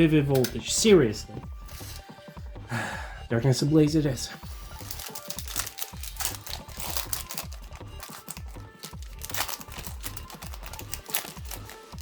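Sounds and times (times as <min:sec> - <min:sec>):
drum and bass music: 0:00.0 - 0:12.0
foil booster pack tearing open: 0:04.7 - 0:12.0.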